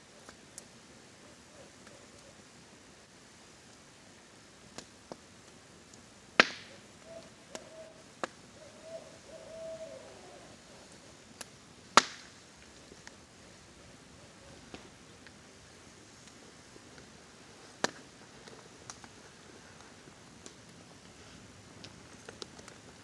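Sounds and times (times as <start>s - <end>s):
faint rain hiss: 0.0s - 23.0s
owl hooting: 0.1s - 2.5s, 6.5s - 11.2s, 13.4s - 15.2s
campfire crackling and popping: 0.1s - 8.6s, 10.8s - 23.0s.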